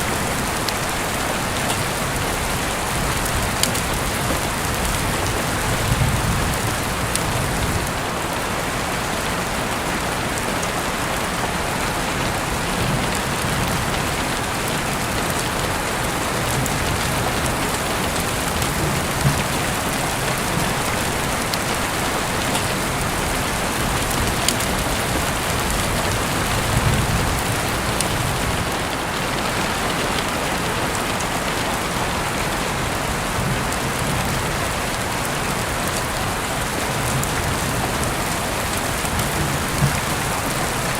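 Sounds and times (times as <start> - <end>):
steady rain: 0.0 - 40.9
raindrop clicks: 0.2 - 8.0, 12.2 - 32.0, 33.4 - 40.9.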